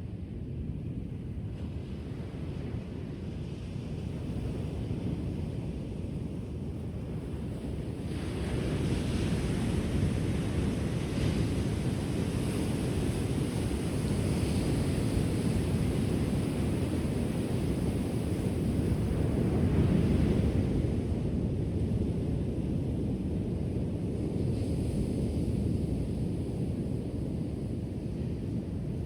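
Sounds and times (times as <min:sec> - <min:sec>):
wind noise on microphone: 0:00.0 - 0:29.0
ocean waves on shore: 0:07.0 - 0:21.4.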